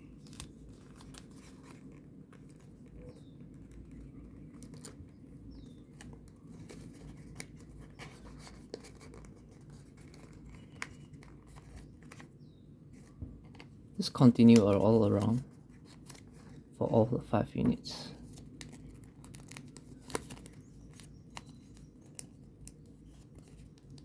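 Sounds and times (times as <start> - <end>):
low room hum: 0.0 - 24.0
paper rustling and clicking: 0.2 - 12.3, 14.3 - 16.8, 17.6 - 24.0.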